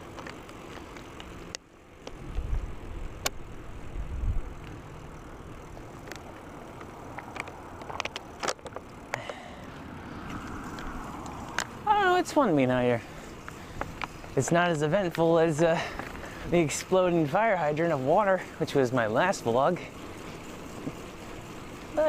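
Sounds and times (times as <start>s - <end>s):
bicycle riding noise: 0.0s - 22.0s
low bumps: 5.8s - 16.4s.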